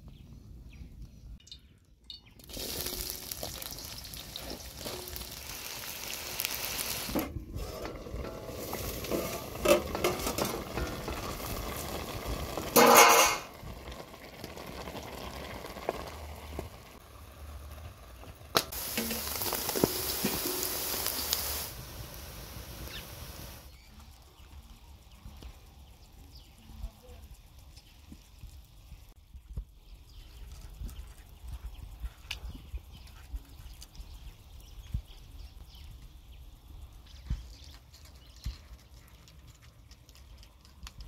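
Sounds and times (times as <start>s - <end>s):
onions sizzling in hot oil: 2.4s - 23.8s
stirring in a pan: 2.5s - 13.5s, 18.6s - 21.8s.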